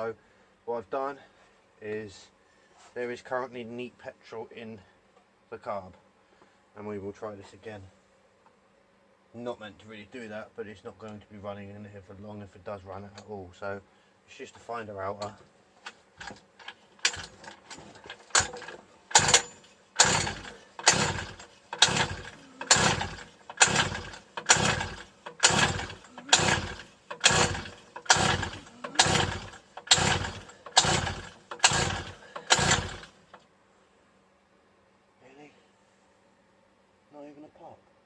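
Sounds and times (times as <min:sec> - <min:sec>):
engine pull-starter recoil: 0:16.2 - 0:33.4.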